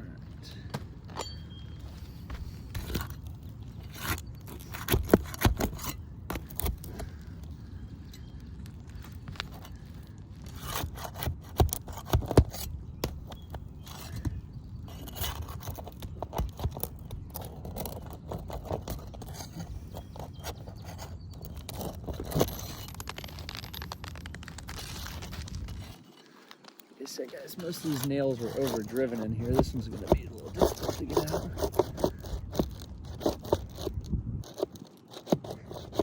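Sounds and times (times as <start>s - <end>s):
metal tool scraping shingles: 2.5s - 7.2s, 9.4s - 36.0s.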